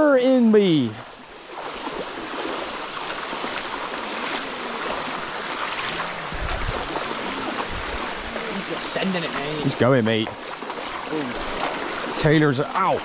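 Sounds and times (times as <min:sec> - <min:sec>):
small water splashes: 0:01.0 - 0:13.0
waterfall rushing: 0:01.9 - 0:10.0.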